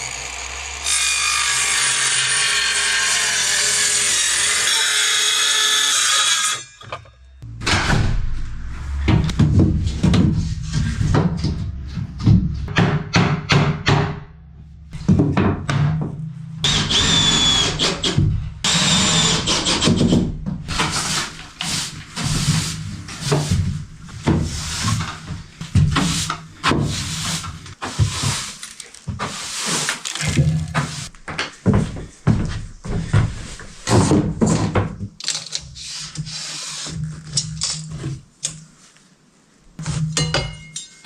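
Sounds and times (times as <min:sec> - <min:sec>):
high power tool whine: 0:00.0 - 0:01.6.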